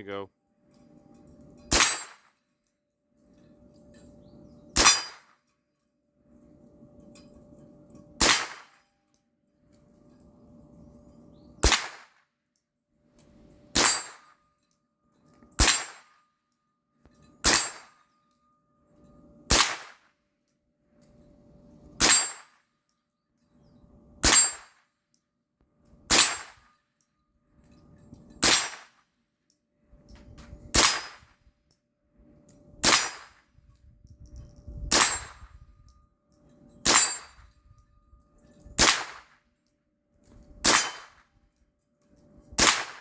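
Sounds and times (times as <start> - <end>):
rifle shots: 8.2 - 8.6, 11.6 - 12.0, 19.5 - 20.0, 26.1 - 26.5, 30.8 - 31.2, 38.8 - 39.3, 40.6 - 41.1, 42.6 - 43.0.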